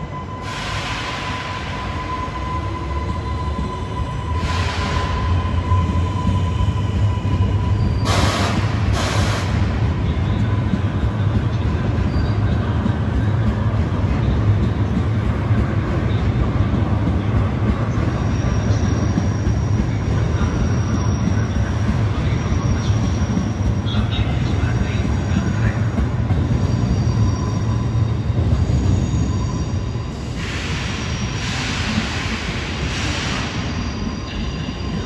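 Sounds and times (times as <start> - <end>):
high-pitched wheel squeal: 0.0 - 10.8, 11.8 - 13.3, 17.2 - 35.0
train rumbling slowly: 0.0 - 35.0
short air hisses: 30.4 - 33.7.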